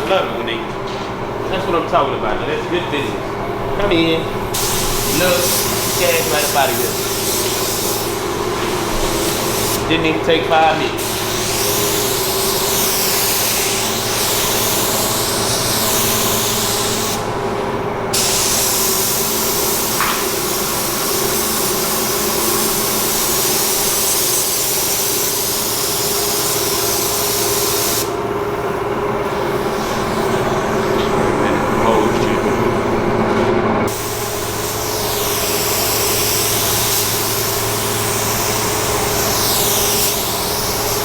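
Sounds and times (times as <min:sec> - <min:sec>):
steady hum: 0:00.0 - 0:41.0
compressed-air gun hissing: 0:04.4 - 0:17.5, 0:18.1 - 0:28.2, 0:29.2 - 0:31.2, 0:33.9 - 0:41.0.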